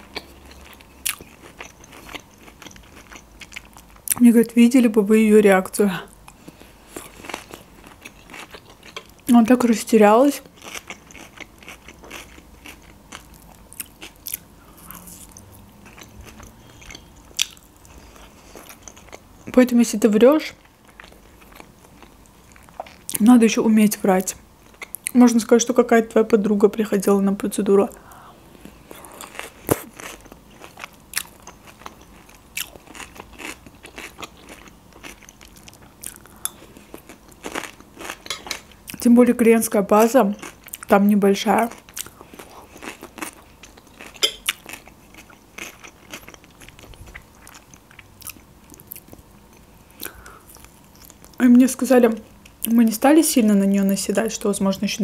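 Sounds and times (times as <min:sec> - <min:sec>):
person chewing food: 0:00.0 - 0:04.2, 0:06.2 - 0:09.2, 0:10.4 - 0:19.6, 0:20.8 - 0:23.2, 0:27.9 - 0:39.0, 0:40.4 - 0:40.9, 0:41.6 - 0:51.4.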